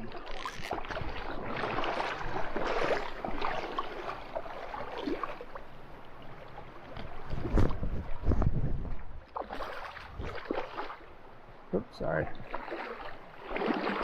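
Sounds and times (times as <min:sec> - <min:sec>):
small splashes: 0:00.0 - 0:05.7, 0:09.3 - 0:11.1, 0:12.2 - 0:14.0
river water splashing and rushing: 0:00.0 - 0:08.3, 0:09.2 - 0:11.6, 0:12.3 - 0:14.0
wind rumble on microphone: 0:07.0 - 0:09.3, 0:10.0 - 0:10.5.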